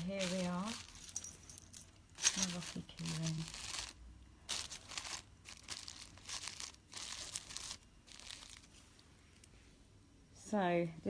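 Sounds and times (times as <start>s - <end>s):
packaging crinkling: 0.0s - 1.2s, 2.2s - 8.8s.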